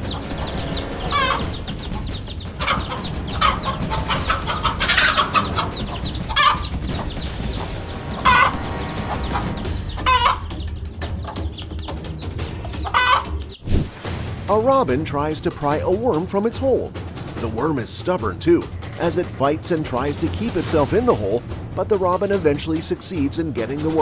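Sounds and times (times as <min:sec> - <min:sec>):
chickens clucking: 0:00.0 - 0:13.9
short loud chicken calls: 0:00.1 - 0:01.7, 0:02.6 - 0:06.7, 0:08.1 - 0:10.5, 0:12.8 - 0:13.6.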